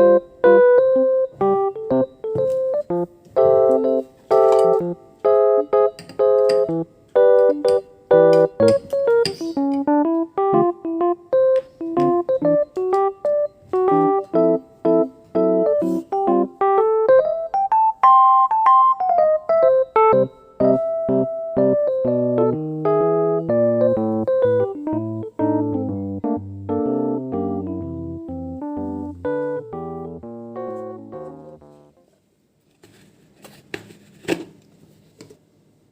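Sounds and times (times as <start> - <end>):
gentle piano melody: 0.0 - 32.0.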